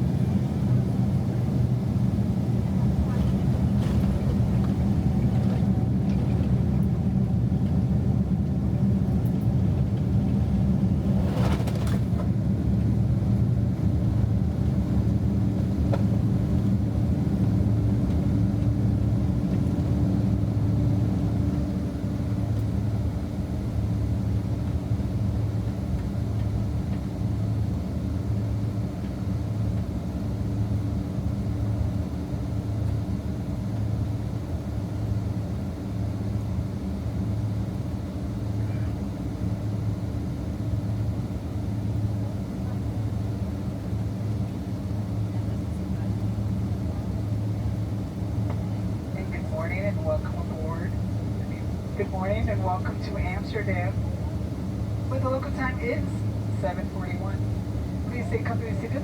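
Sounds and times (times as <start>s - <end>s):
airplane cabin engine rumble: 0.0s - 59.0s
faint steady hum: 47.6s - 59.0s.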